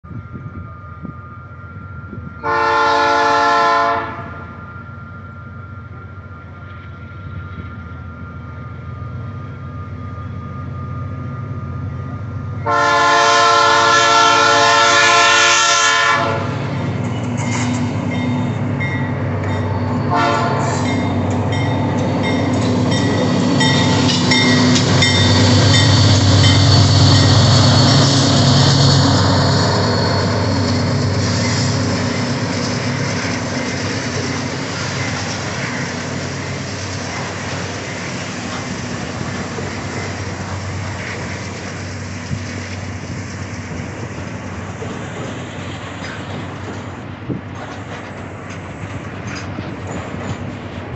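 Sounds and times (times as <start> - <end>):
train rolling on rails: 0.0 - 50.9
locomotive rumbling past: 0.1 - 50.9
locomotive air horn blast: 2.4 - 4.5, 12.6 - 16.7, 20.1 - 20.9.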